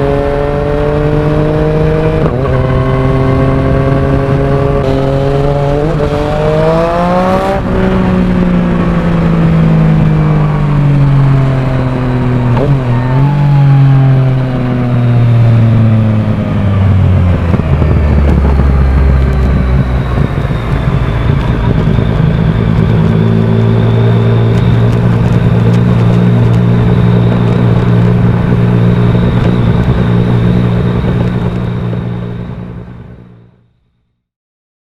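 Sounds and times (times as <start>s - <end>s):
motorcycle engine revving: 0.0s - 33.6s.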